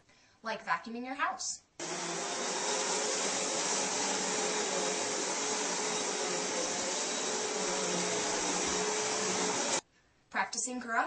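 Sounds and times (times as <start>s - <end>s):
vacuum cleaner whoosh: 1.8s - 9.8s.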